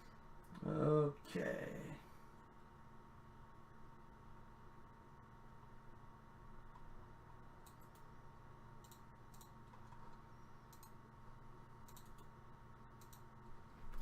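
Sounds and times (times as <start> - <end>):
faint computer mouse clicks: 8.8 - 11.0, 11.8 - 12.3, 13.0 - 13.3.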